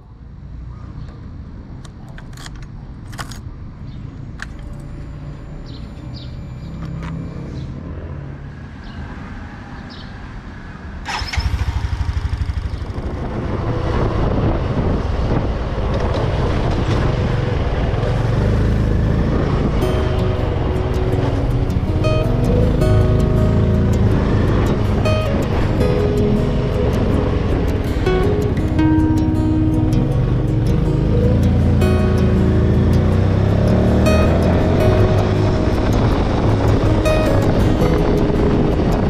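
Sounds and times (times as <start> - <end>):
small engine starting and running: 11.1 - 13.3.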